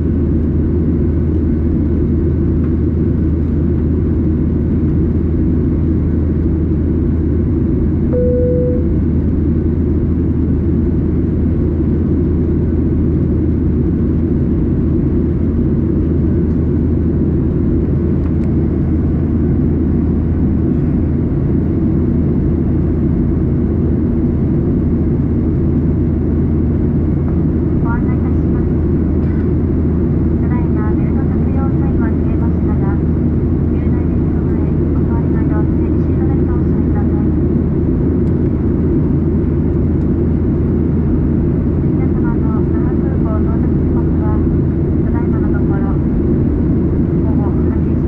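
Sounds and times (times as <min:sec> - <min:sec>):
airliner cabin rumble: 0:00.0 - 0:48.0
single tone: 0:08.1 - 0:09.1.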